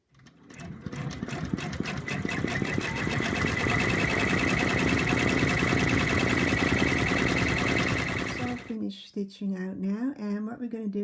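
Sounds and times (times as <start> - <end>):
embroidery machine stitching: 0.0 - 8.8.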